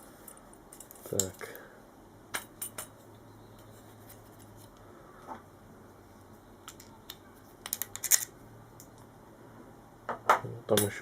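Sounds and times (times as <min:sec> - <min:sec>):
small metal parts clicking: 0:07.6 - 0:09.0.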